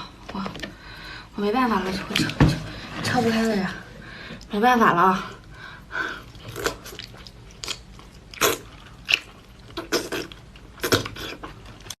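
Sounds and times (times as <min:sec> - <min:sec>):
crunching while chewing hard food: 0:06.3 - 0:12.0.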